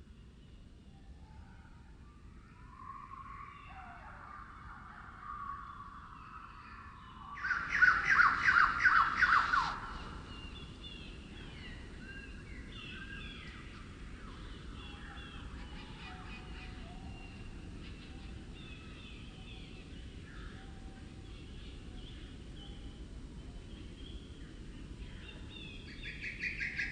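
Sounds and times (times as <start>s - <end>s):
slowed birdsong: 0.0s - 26.9s
birds chirping and whistling: 2.7s - 13.6s.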